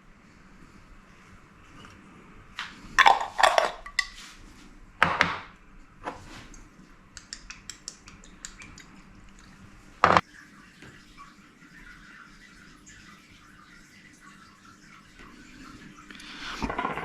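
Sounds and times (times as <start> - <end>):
cutlery and dishes clattering: 16.6 - 17.0.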